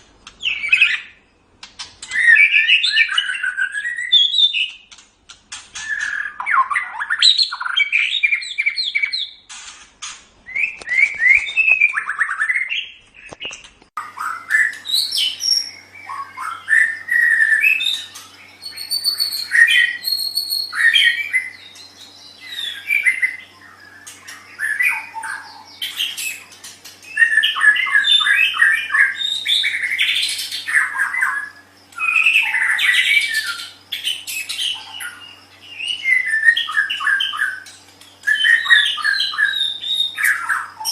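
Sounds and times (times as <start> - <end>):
faint steady hum: 0.0 - 40.9
bird singing whistled phrases: 2.0 - 4.8, 5.8 - 9.4, 14.0 - 26.4, 27.1 - 40.9.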